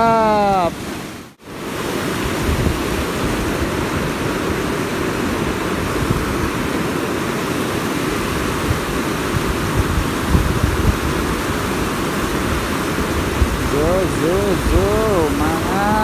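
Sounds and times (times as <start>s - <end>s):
fast-flowing river rushing: 0.0s - 16.0s.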